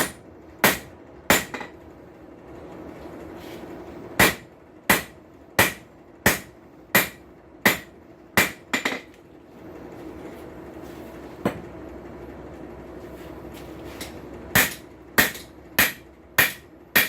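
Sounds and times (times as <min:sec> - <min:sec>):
hammer striking steel on anvil: 0:00.0 - 0:01.8, 0:04.2 - 0:09.1, 0:14.0 - 0:17.0
steady low hum: 0:00.0 - 0:17.0.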